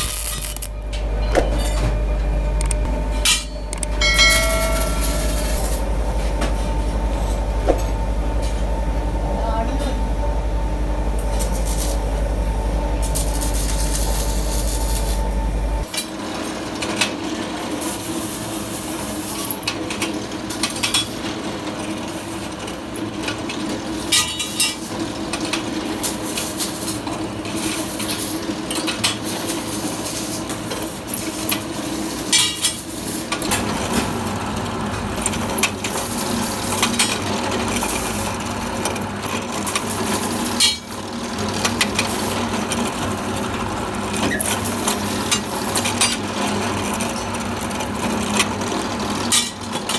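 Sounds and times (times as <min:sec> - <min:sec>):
metal parts clinking: 0:00.0 - 0:00.7
faint steady hum: 0:00.0 - 0:15.9
workshop machine humming: 0:00.0 - 0:49.9.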